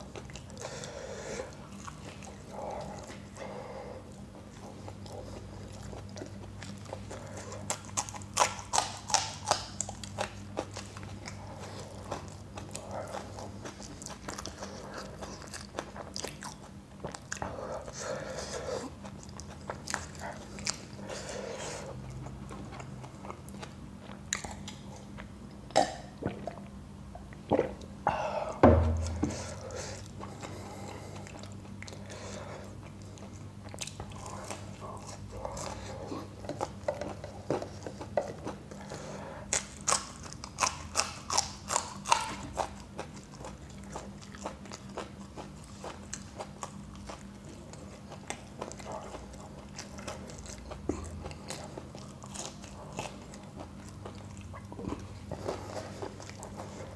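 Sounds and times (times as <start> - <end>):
faint low hum: 0.0 - 56.9
wet mouth noises: 24.3 - 32.0
loud thump: 28.6 - 29.4
crunching crisp food: 29.3 - 56.9.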